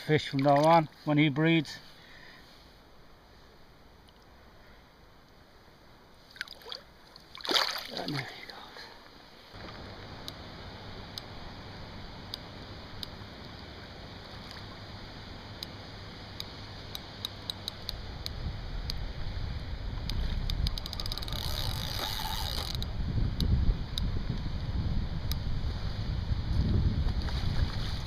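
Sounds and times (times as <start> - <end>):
light sharp ticks: 4.0 - 4.3, 11.1 - 11.3, 12.2 - 13.7, 16.4 - 19.0, 20.0 - 24.5, 25.2 - 25.4
river water rushing: 6.3 - 8.6
wind buffeting microphone: 18.2 - 28.0.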